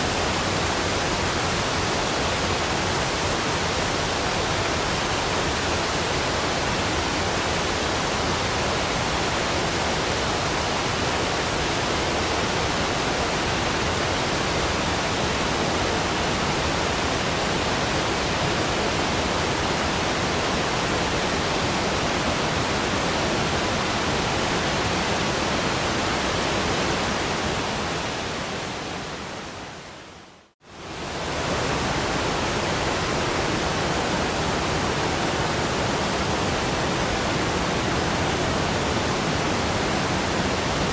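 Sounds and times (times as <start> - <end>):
waterfall roaring: 0.0 - 40.9.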